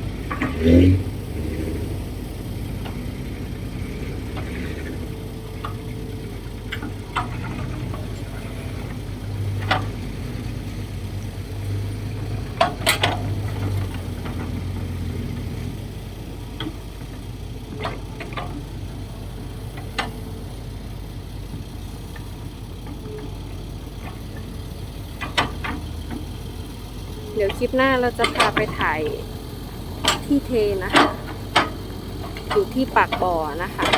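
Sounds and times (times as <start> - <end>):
excavator diesel engine running: 0.0 - 33.9
sharp metallic clanks: 27.4 - 29.2, 30.0 - 33.9.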